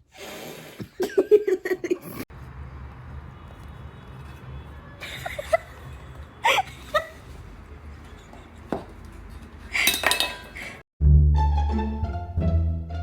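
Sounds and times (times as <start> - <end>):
dishes clattering: 7.8 - 10.8
short clinks and knocks: 8.8 - 10.8.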